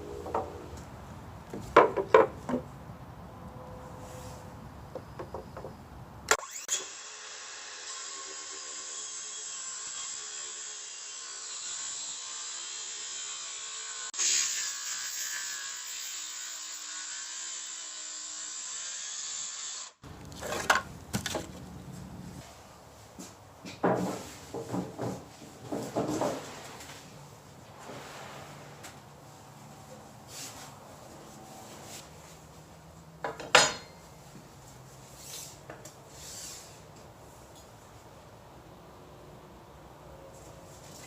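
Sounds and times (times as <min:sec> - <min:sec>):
sharp wooden knocks: 0:01.7 - 0:02.7
saw cutting wooden board: 0:06.3 - 0:21.5.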